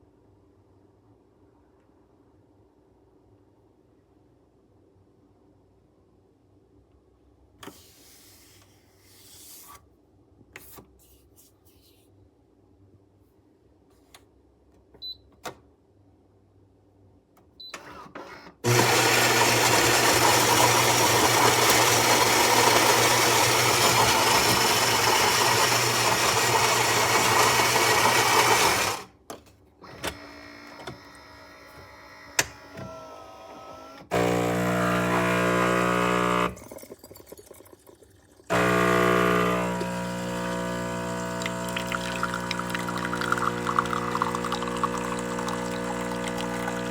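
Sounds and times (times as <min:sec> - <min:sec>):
coffee grinder running: 0:18.6 - 0:29.1, 0:34.1 - 0:36.9, 0:38.5 - 0:46.9
espresso machine clicks and whirs: 0:18.6 - 0:29.1, 0:34.0 - 0:36.6, 0:38.5 - 0:46.9
pump buzzing hum: 0:18.6 - 0:29.1, 0:29.8 - 0:36.9, 0:38.5 - 0:46.9.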